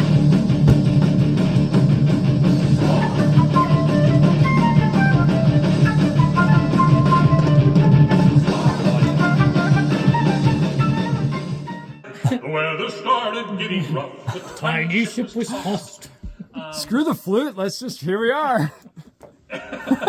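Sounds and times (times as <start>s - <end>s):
drum kit: 0.0s - 11.8s
electric guitars: 0.0s - 12.0s
lead melody line: 3.1s - 12.0s.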